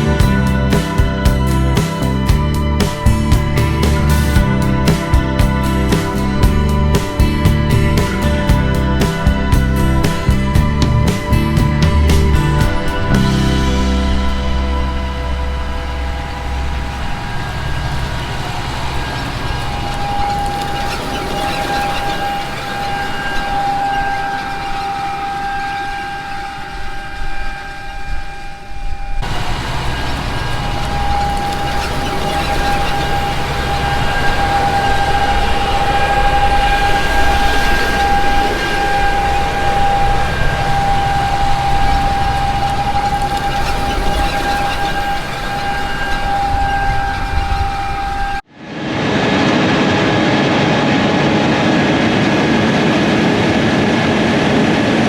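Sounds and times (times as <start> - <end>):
deep engine rumble: 0.0 - 27.2, 29.2 - 48.5
constant high whine: 0.0 - 55.0.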